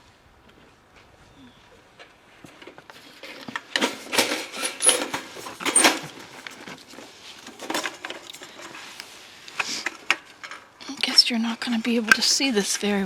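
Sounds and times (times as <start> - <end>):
rustling and clattering handling: 2.0 - 10.7.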